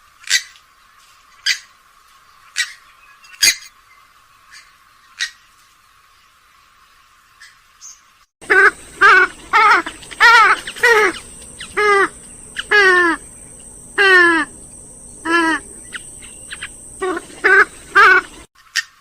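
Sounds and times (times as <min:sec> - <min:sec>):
swamphen calling: 0:08.4 - 0:18.5.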